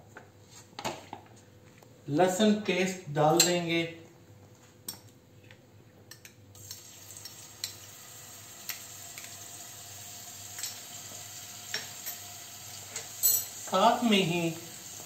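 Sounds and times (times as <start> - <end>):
garlic paste sizzling in oil: 6.6 - 15.0.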